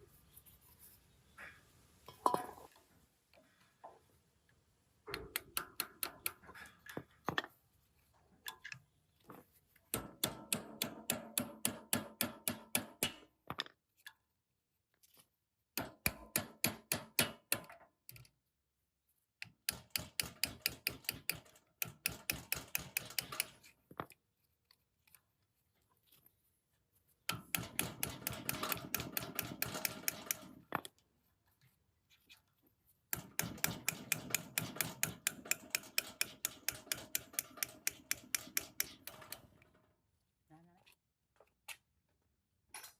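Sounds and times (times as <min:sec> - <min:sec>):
hammer tapping on metal: 0:05.1 - 0:06.4, 0:09.9 - 0:13.2, 0:15.8 - 0:17.8, 0:27.3 - 0:30.5, 0:33.2 - 0:39.4.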